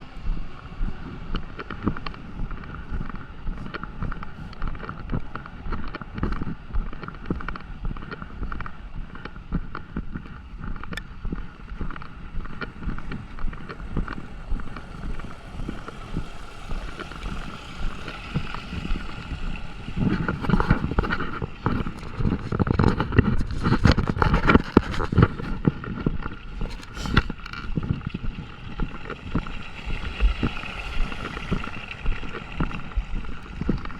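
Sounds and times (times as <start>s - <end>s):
footsteps on wet pavement: 0.0s - 33.9s
low rumble: 0.0s - 33.9s
steady rain falling: 11.5s - 25.5s.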